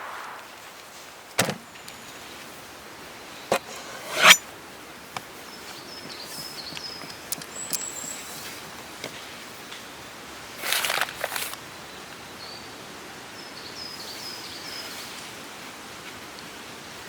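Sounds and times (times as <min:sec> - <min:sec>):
steady background hiss: 0:00.0 - 0:06.6.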